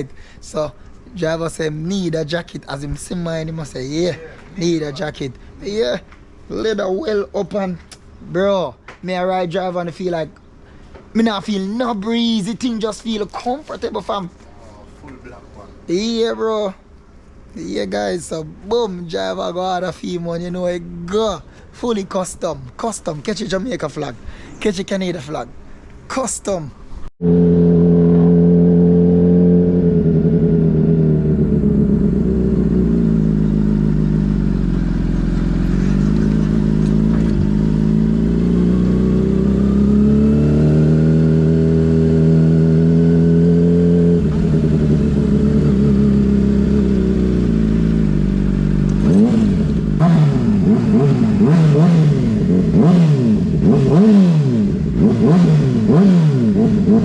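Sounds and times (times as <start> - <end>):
motorcycle engine revving: 27.2 - 57.0
motorcycle engine running: 27.2 - 57.0.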